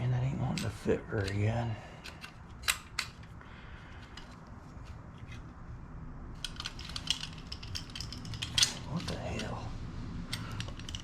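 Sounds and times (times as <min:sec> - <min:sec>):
small metal parts clicking: 0:02.0 - 0:05.4, 0:06.4 - 0:09.6, 0:10.3 - 0:11.0.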